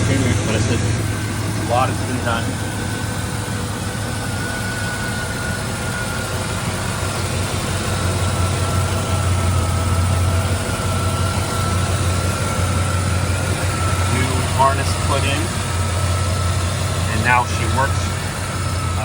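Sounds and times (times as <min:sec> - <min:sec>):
car engine idling: 0:00.0 - 0:19.0
faint high whine: 0:00.0 - 0:19.0.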